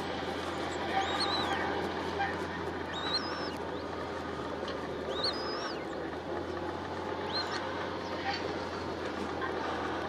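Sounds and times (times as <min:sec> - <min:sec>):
constant hum: 0:00.0 - 0:10.0
low background rumble: 0:00.0 - 0:10.0
high gliding bird calls: 0:00.5 - 0:01.8, 0:02.8 - 0:04.0, 0:05.0 - 0:06.0, 0:07.2 - 0:08.2.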